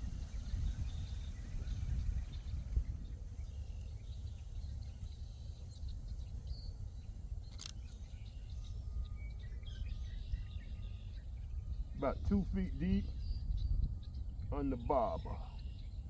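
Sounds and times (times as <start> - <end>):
birds chirping: 0.0 - 16.0
low outdoor rumble: 0.0 - 16.0
sharp click: 7.4 - 8.1.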